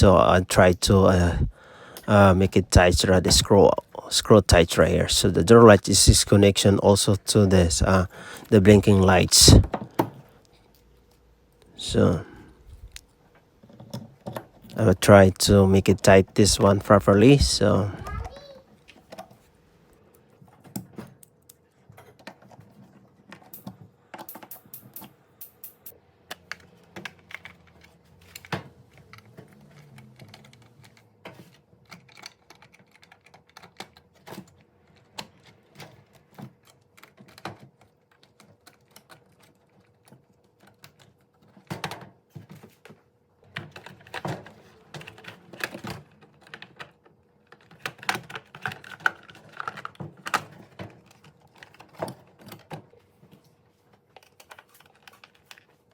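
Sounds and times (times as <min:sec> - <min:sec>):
hand tool clicks and taps: 0:23.5 - 0:25.9.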